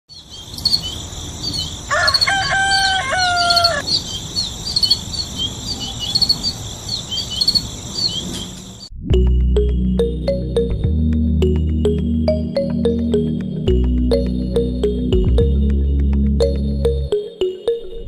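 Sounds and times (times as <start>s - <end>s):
small birds chirping: 0.1s - 8.9s
rooster crowing: 1.8s - 3.9s.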